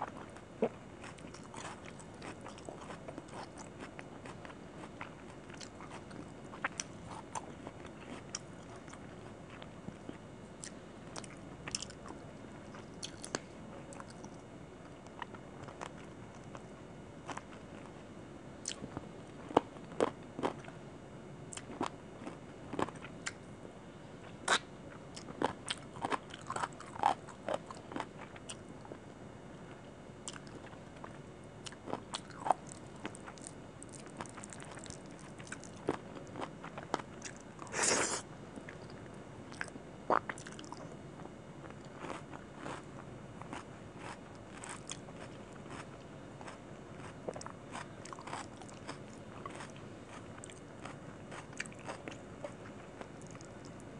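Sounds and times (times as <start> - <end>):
chewing: 0.0 - 14.4, 24.5 - 29.0, 30.2 - 40.9, 41.6 - 53.8.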